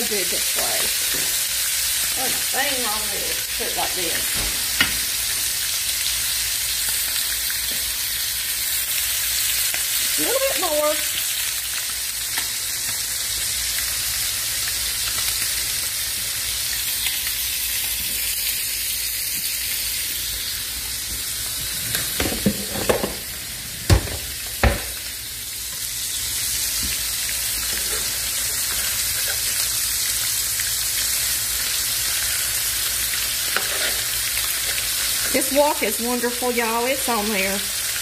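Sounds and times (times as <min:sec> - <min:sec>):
food sizzling in hot oil: 0:00.0 - 0:38.0.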